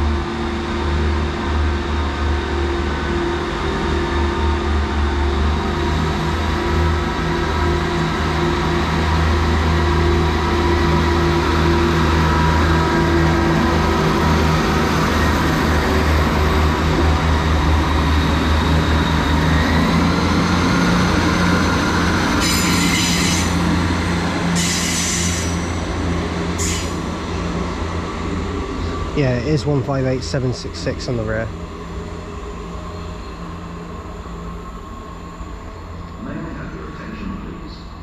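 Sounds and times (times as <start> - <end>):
diesel train engines droning: 0.0 - 38.0
high-pitched wheel squeals: 22.3 - 23.8, 24.6 - 25.8, 26.6 - 27.0.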